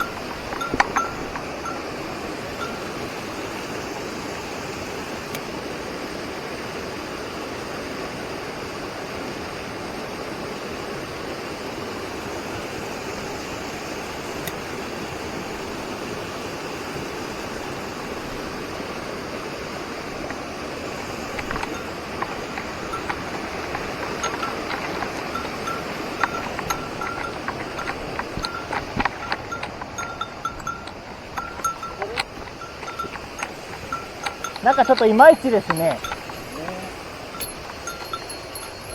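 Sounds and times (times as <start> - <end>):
small bell jingling: 0.0 - 3.5, 20.2 - 38.9
light clicks: 21.0 - 38.9.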